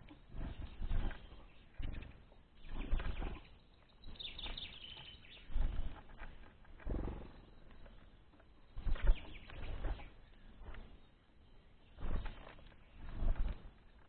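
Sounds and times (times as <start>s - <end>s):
small birds fluttering wings: 0.0s - 14.0s
high bird twittering: 0.3s - 6.0s, 8.7s - 13.2s.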